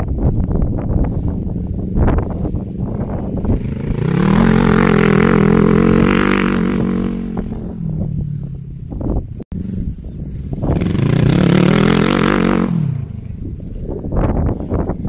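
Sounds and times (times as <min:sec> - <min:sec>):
quad bike engine revving: 0:01.9 - 0:08.3, 0:09.6 - 0:13.6.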